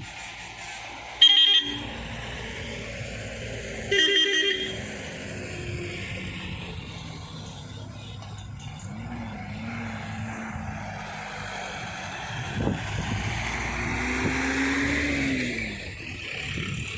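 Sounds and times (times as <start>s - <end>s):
diesel engine running: 0.0s - 16.9s
warbling vehicle horn blasts: 1.2s - 2.0s, 3.9s - 4.9s.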